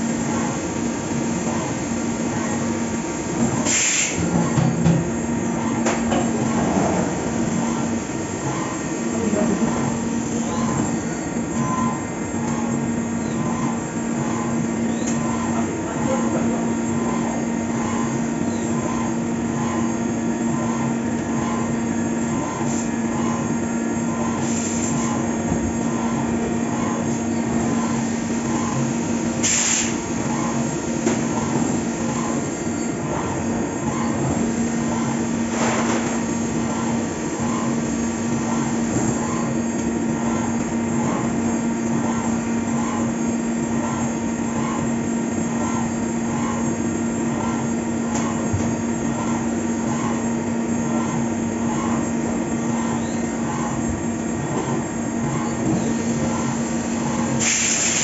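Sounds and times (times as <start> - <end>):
milling machine running hum: 0.0 - 58.0
short hissing bursts: 57.4 - 58.0.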